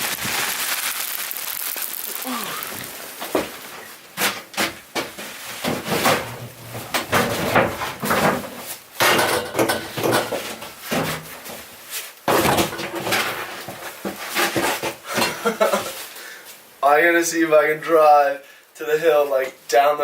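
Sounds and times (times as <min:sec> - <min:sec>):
knocks bangs and clatter: 0:04.2 - 0:11.3, 0:12.3 - 0:13.9.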